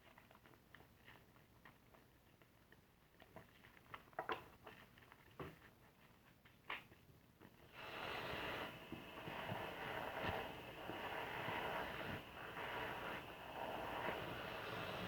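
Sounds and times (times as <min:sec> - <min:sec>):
sponge lather squishing: 0:07.8 - 0:15.0.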